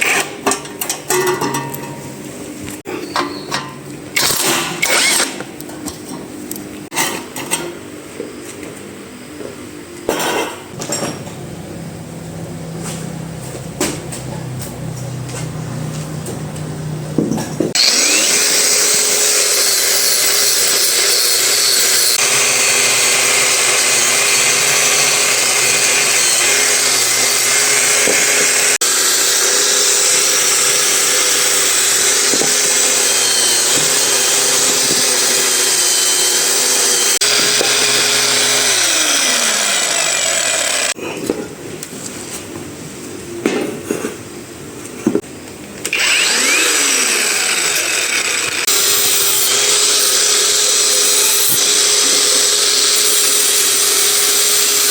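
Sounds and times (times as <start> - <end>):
electric power tool running: 17.7 - 41.0, 45.8 - 54.9.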